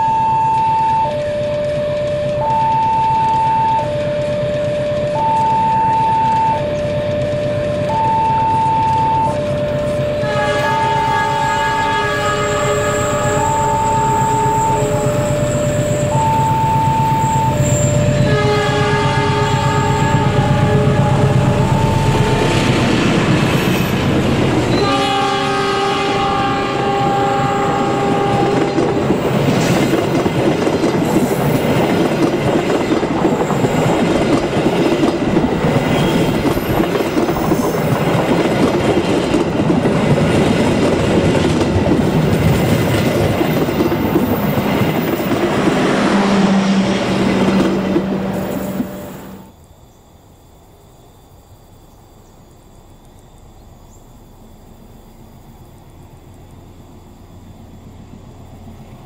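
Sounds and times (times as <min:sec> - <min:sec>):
train horn blast: 0:00.0 - 0:23.9, 0:24.6 - 0:29.7, 0:35.8 - 0:36.7, 0:45.2 - 0:49.5
train wheels clattering over rails: 0:01.0 - 0:11.5, 0:16.9 - 0:49.3.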